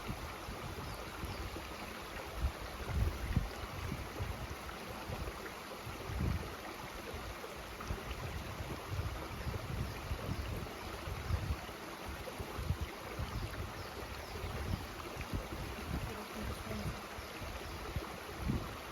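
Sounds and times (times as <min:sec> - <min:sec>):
mountain stream rushing: 0:00.0 - 0:18.9
wind buffeting microphone: 0:02.3 - 0:06.5, 0:07.9 - 0:11.6, 0:12.5 - 0:18.8.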